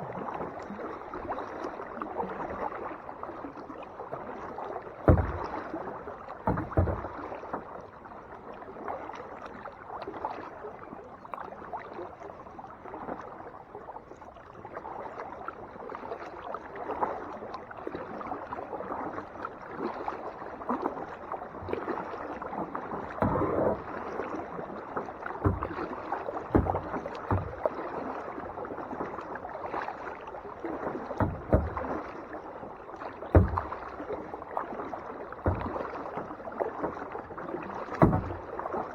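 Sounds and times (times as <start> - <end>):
paddle splashing in water: 0.0 - 38.9
water running off paddle blades: 0.2 - 8.9, 17.9 - 38.9
loud thumps: 5.1 - 5.5, 6.5 - 7.1, 23.2 - 23.9, 25.4 - 25.8, 26.5 - 27.6, 31.2 - 31.9, 33.4 - 33.8, 38.0 - 38.5.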